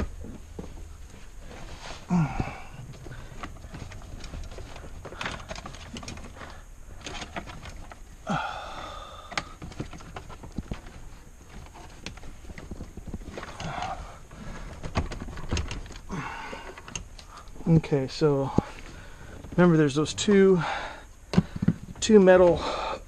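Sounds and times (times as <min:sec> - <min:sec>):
clicks and knocks from dashboard: 0:09.3 - 0:13.8, 0:14.6 - 0:17.3.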